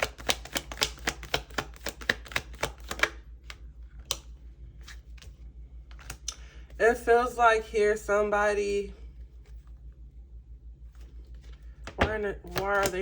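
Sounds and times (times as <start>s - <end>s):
cards being shuffled by hand: 0.0s - 6.5s, 10.9s - 13.0s.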